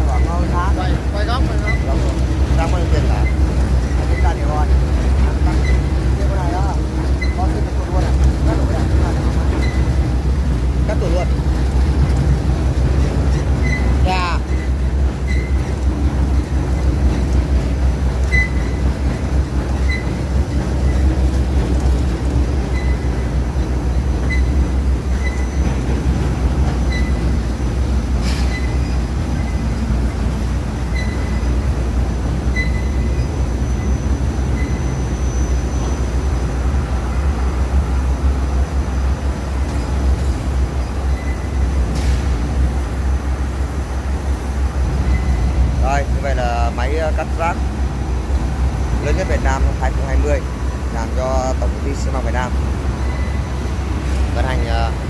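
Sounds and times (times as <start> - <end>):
waste shredder rumbling: 0.0 - 32.5.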